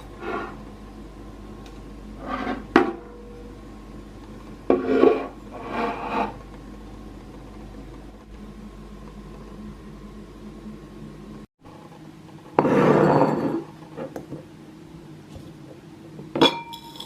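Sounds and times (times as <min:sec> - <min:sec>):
kitchen items scraping and rubbing: 0:00.0 - 0:00.7, 0:02.2 - 0:03.2, 0:04.6 - 0:06.5, 0:12.6 - 0:14.2, 0:16.5 - 0:17.0.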